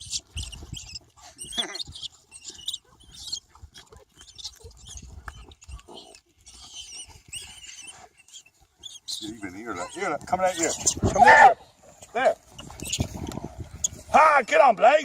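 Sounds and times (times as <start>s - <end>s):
low rumble on microphone: 12.6s - 14.2s.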